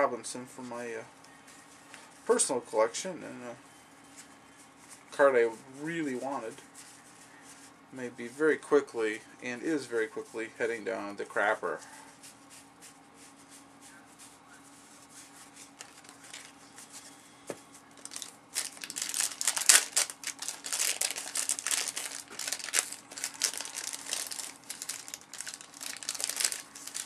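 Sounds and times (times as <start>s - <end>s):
cellophane wrapper crinkling: 15.6s - 16.6s, 18.0s - 27.0s.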